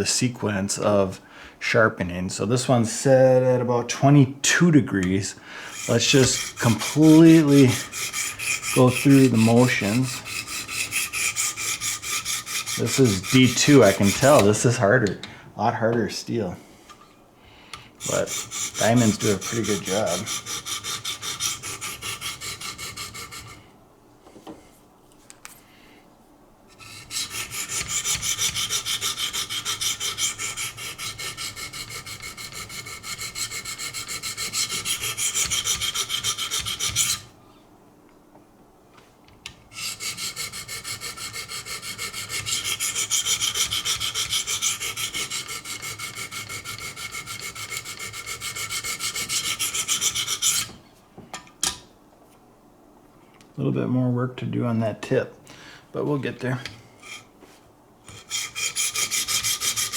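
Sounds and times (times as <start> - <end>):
sharpening stone scraping blade: 5.7 - 14.4, 18.0 - 23.6, 26.8 - 37.2, 39.8 - 50.8, 58.1 - 59.9.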